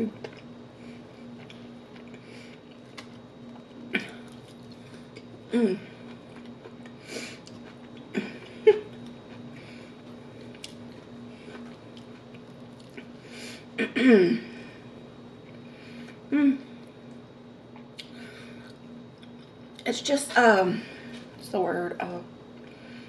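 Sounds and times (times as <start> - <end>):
steady low hum: 0.0 - 23.0
person humming: 16.3 - 16.7.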